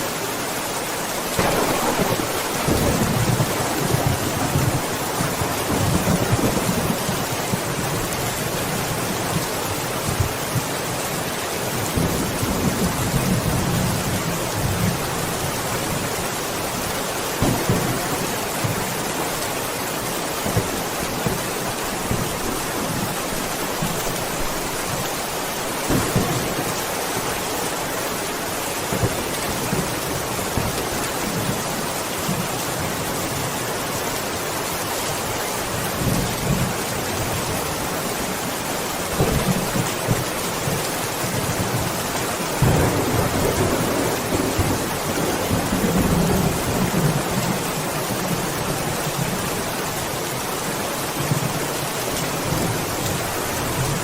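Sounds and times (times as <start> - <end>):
heavy rain falling: 0.0 - 54.0
thunder rumbling: 1.4 - 9.6, 17.4 - 19.4, 25.9 - 27.1, 39.1 - 47.7.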